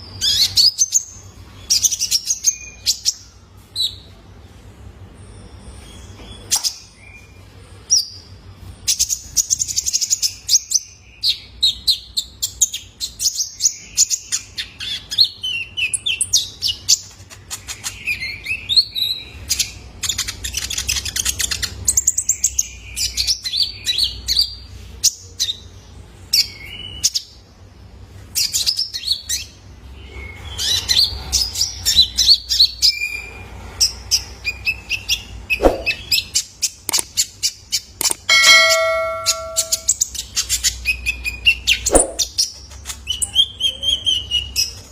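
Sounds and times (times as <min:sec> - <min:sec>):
sunbird chips and trills: 0:38.0 - 0:40.5.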